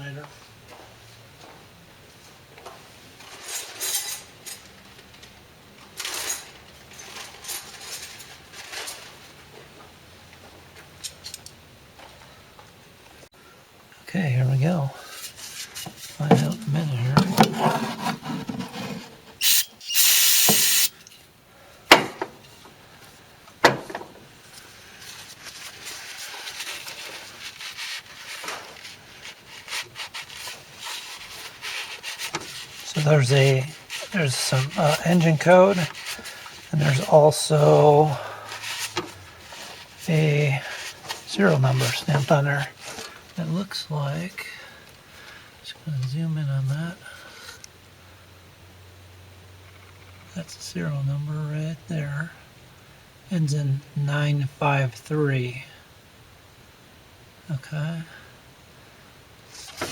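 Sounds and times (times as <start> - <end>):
hand scrubbing metal: 16.3 - 20.9, 29.1 - 37.5.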